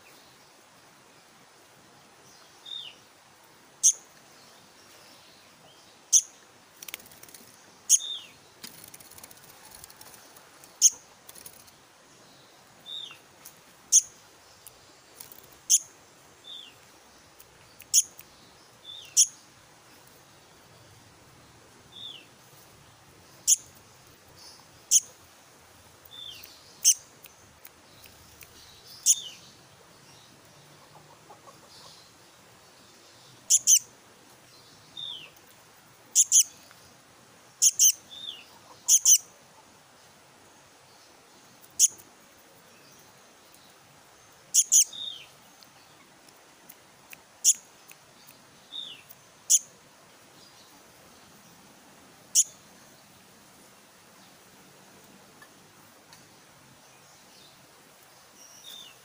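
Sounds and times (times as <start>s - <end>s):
bird chick chirping: 30.6s - 32.1s, 37.6s - 39.2s.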